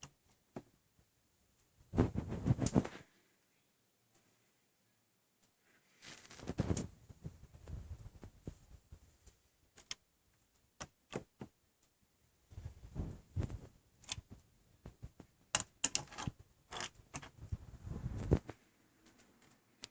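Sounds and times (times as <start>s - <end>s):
small clicks: 9.2s - 12.0s, 15.0s - 17.4s.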